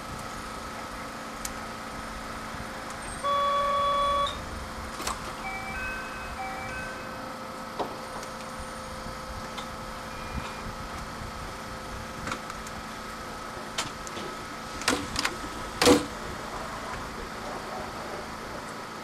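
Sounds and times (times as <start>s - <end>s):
train electrical hum: 0.0s - 19.0s
door shutting clunks: 13.7s - 17.1s.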